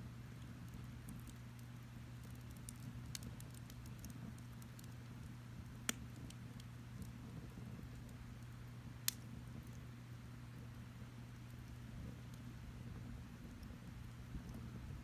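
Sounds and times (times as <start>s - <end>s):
steady low hum: 0.0s - 15.0s
wood fire crackling: 0.0s - 15.0s
fire pops: 0.4s - 8.2s, 9.0s - 9.8s.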